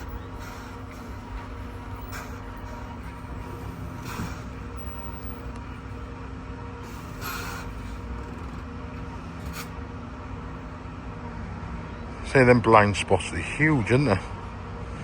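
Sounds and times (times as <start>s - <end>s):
short hiss: 0.0s - 6.0s, 6.8s - 8.4s, 9.4s - 9.8s
faint whining tones: 0.0s - 12.3s
electric bus humming: 0.0s - 15.0s.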